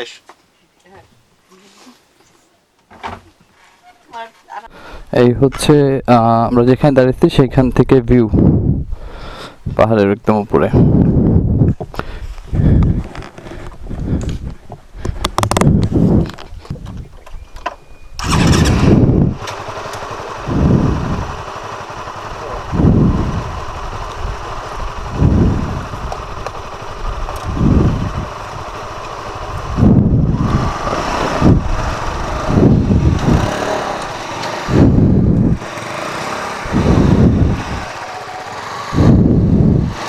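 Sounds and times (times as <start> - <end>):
loud rushing surges: 18.2 - 40.0
motorcycle engine running: 18.2 - 40.0.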